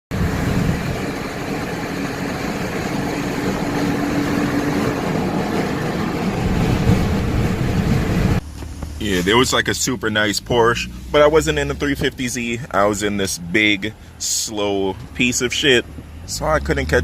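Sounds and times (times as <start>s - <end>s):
car engine and road noise: 0.1s - 17.0s.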